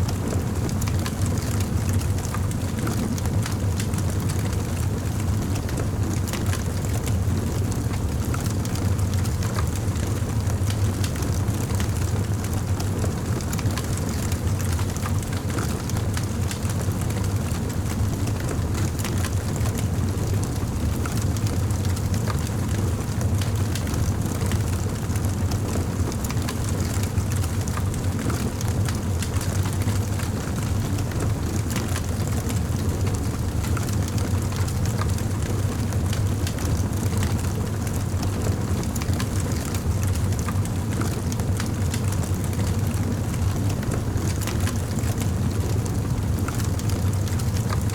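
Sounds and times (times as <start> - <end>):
campfire crackling and popping: 40.3 - 45.7.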